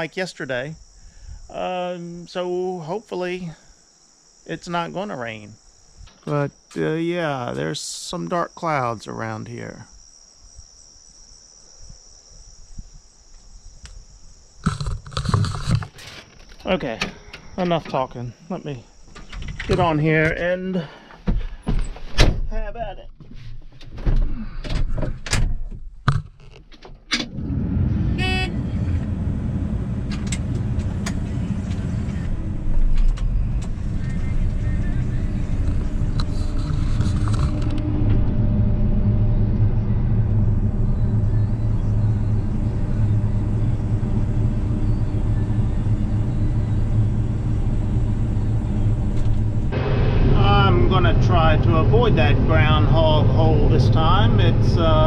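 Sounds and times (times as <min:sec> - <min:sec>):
knocks and clunks: 0:19.1 - 0:20.4, 0:21.0 - 0:38.6
combine harvester droning: 0:27.2 - 0:55.0.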